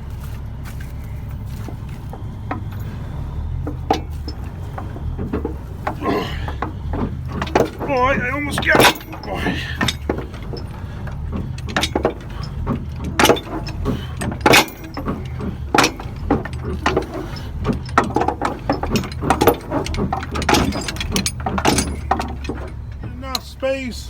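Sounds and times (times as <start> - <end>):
diesel engine running: 0.0 - 24.0
metal knocks and clanks: 1.0 - 24.0.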